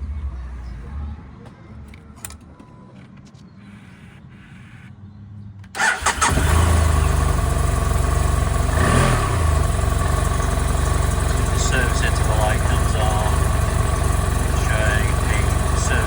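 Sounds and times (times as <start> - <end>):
motorcycle engine idling: 5.8 - 16.0
motorcycle starter cranking: 5.8 - 16.0.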